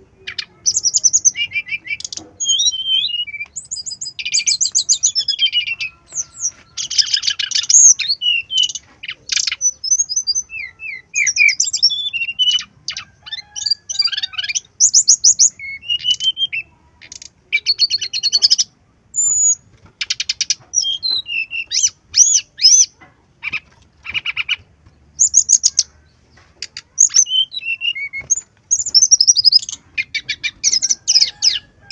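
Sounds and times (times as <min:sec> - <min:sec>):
bird singing chirps and trills: 0:00.0 - 0:31.9.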